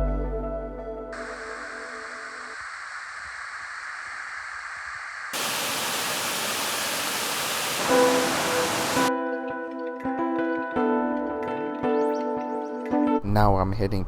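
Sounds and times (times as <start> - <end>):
waterfall rushing: 1.2 - 3.4, 5.3 - 9.1.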